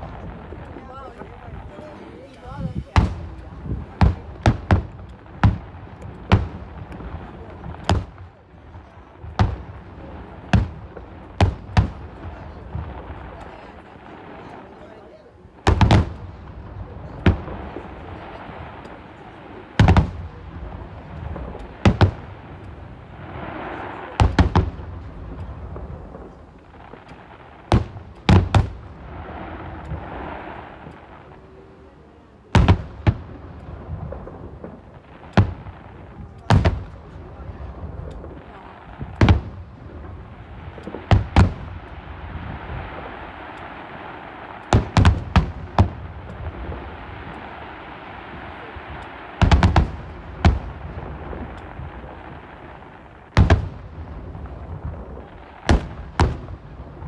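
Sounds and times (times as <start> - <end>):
murmur of crowd voices: 0.0 - 57.0
firework shells bursting: 32.5 - 57.0.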